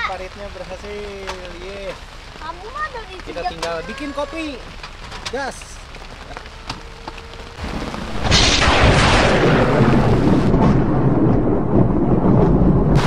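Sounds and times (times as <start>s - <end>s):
water streaming off tent: 0.0s - 10.6s
heavy rain on a tent: 0.0s - 13.0s
deep low rumble: 5.7s - 13.0s.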